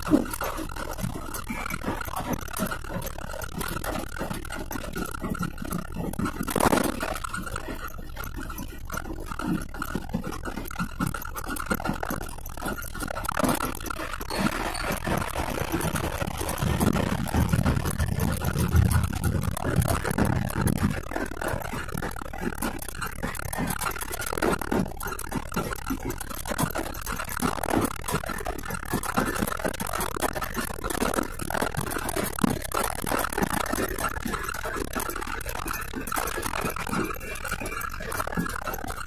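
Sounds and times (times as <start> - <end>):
small rattles: 0.0 - 39.0
truck engine and road noise: 13.2 - 22.3.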